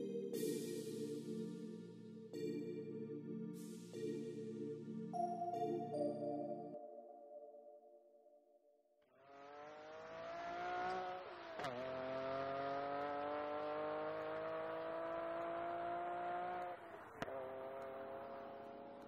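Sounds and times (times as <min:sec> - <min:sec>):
car engine accelerating: 0:09.2 - 0:19.0.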